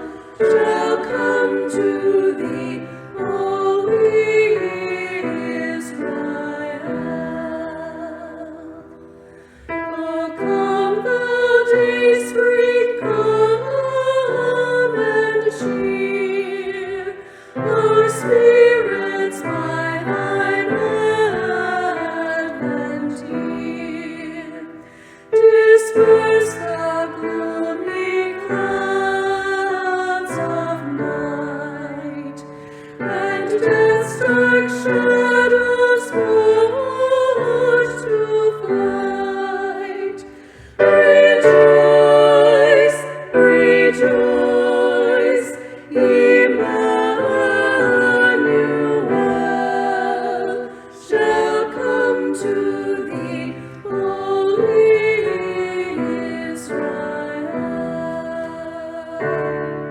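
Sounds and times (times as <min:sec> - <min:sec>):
piano accompaniment: 0:00.0 - 0:59.9
women singing in harmony: 0:00.0 - 0:59.9.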